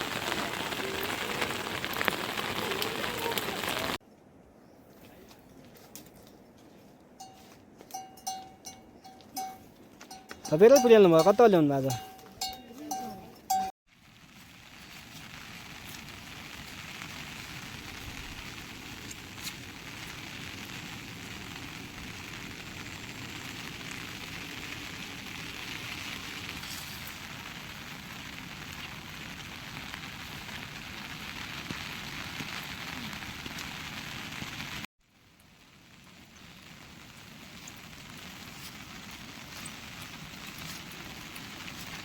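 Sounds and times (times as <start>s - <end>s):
steady rain hiss: 0.0s - 4.0s, 13.9s - 42.0s.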